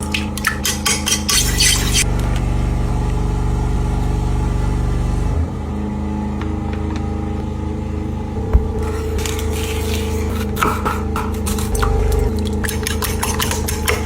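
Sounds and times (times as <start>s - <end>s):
motor humming: 7.4s - 10.6s
rattling: 8.3s - 9.6s.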